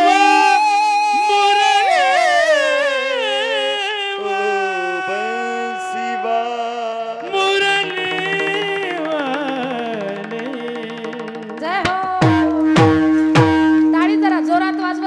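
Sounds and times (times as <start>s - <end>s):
person singing devotional melody: 0.0s - 15.0s
steady instrumental tones: 5.2s - 15.0s.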